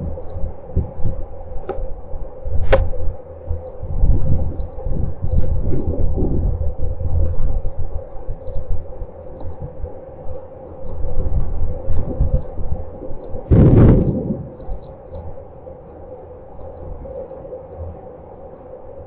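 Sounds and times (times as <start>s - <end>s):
wind buffeting microphone: 0.0s - 10.3s, 10.9s - 15.7s
faint ticks of rain: 0.0s - 19.0s
steady electrical hum: 0.0s - 19.0s.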